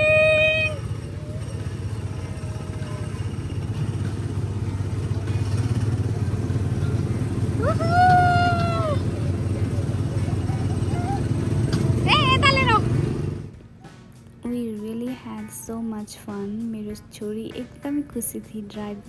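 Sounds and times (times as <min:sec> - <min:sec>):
small gasoline engine rumbling: 0:00.0 - 0:13.9.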